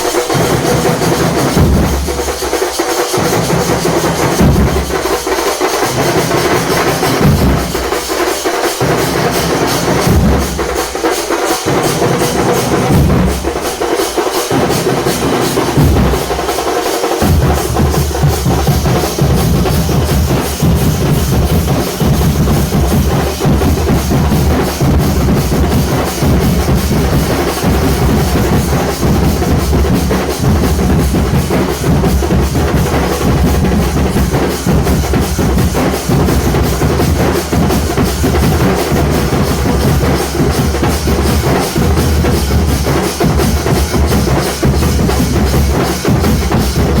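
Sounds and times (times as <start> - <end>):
dhol drums beaten fast: 0.0 - 47.0.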